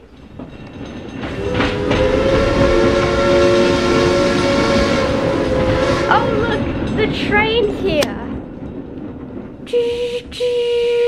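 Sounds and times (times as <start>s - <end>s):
train rumbling: 0.0s - 11.0s
train horn: 1.3s - 6.8s, 9.7s - 11.0s.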